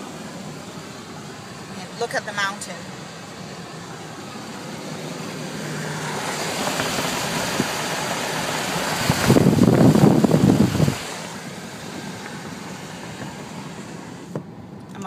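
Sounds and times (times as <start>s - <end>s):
car road and engine noise: 0.0s - 15.0s
loud rushing noise: 4.0s - 14.2s.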